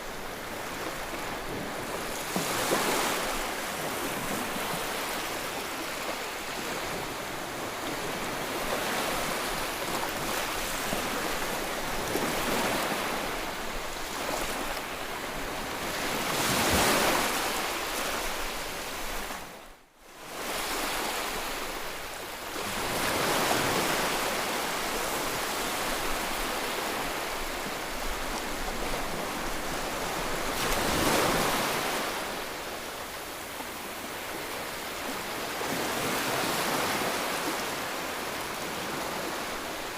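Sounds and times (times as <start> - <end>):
ocean waves breaking: 0.1 - 14.7, 22.5 - 39.9.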